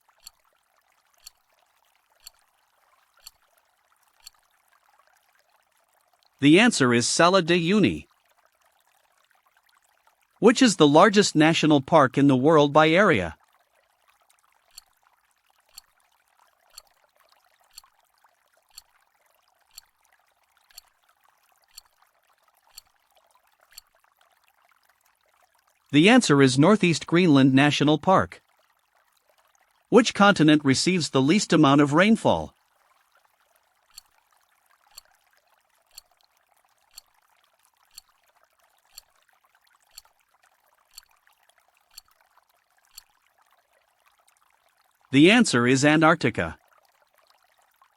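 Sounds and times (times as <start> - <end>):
clock-like ticking: 0.2 - 0.4, 1.2 - 1.4, 2.2 - 2.4, 3.2 - 3.4, 4.2 - 4.4, 17.7 - 17.9, 20.7 - 20.9, 21.7 - 21.9, 22.7 - 22.9, 23.7 - 23.9, 35.9 - 36.1, 36.9 - 37.1, 37.9 - 38.1, 39.9 - 40.1
clock ticking: 2.2 - 2.4.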